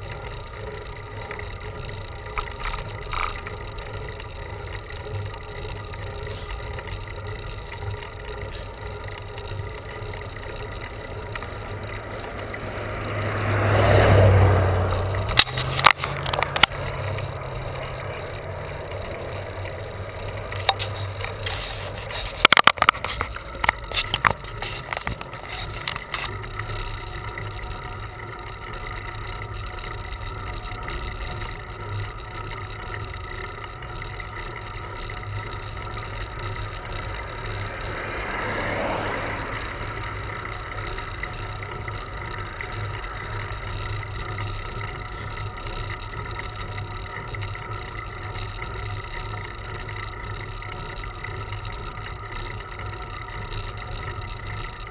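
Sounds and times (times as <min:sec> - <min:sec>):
bicycle rolling noise: 0:00.0 - 0:54.9
sharp clicks and knocks: 0:00.0 - 0:54.9
vehicle passing: 0:11.4 - 0:22.4, 0:36.5 - 0:43.8.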